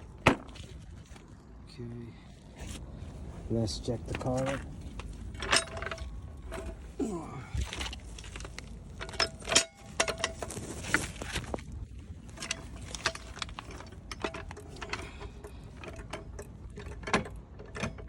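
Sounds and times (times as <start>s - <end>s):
low steady hum: 0.0s - 18.0s
trolley jack clicking and knocking: 12.4s - 18.0s.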